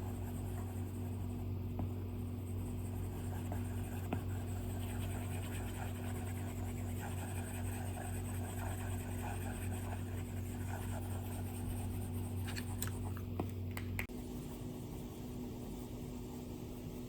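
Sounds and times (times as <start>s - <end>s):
low steady hum: 0.0s - 17.0s
stylus scratching on screen: 2.2s - 13.3s.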